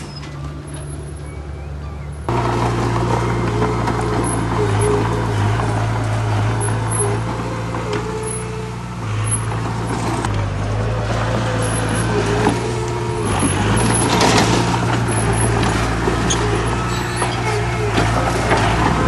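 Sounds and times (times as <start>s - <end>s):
heavy diesel machinery running: 0.0s - 19.0s
short high squeals: 6.4s - 9.5s, 11.4s - 18.4s.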